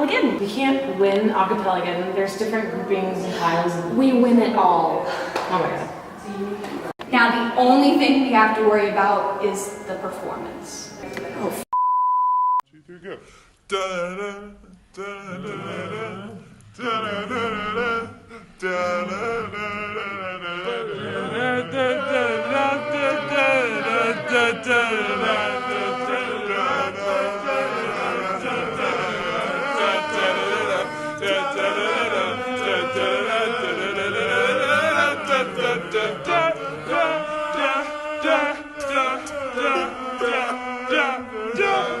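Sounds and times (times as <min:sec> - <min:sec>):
a cappella group singing: 0:00.0 - 0:06.9, 0:13.0 - 0:42.0.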